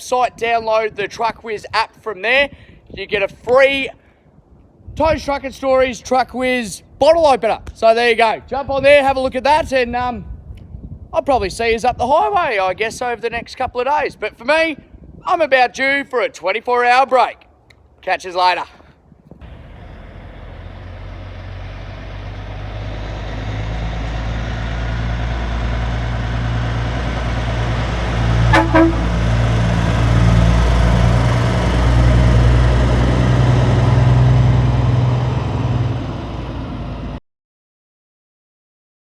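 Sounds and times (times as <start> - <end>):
truck diesel engine rumbling: 19.4 - 37.2
truck horn toots: 28.5 - 30.2.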